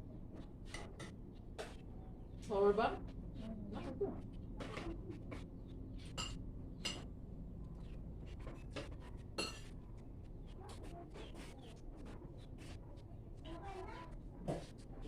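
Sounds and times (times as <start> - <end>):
low background hum: 0.0 - 15.0
cutlery clinking against dishes: 6.0 - 7.1, 8.6 - 9.7.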